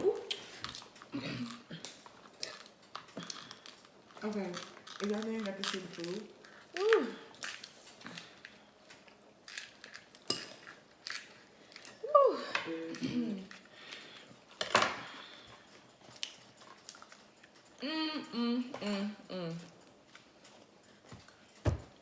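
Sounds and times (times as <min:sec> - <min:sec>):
cutlery and dishes clinking: 0:09.6 - 0:12.0.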